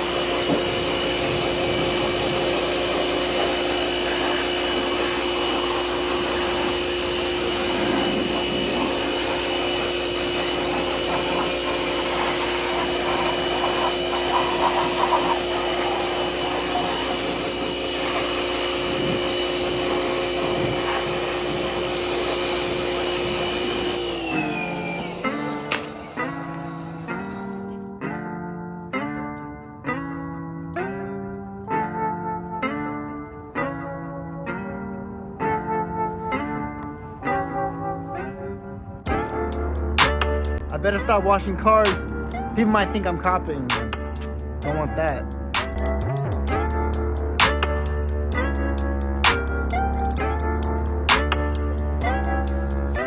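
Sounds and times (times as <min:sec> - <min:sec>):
pressure washer spray hiss: 0:00.0 - 0:27.6
motor and pump whine: 0:00.0 - 0:28.0, 0:39.1 - 0:53.0.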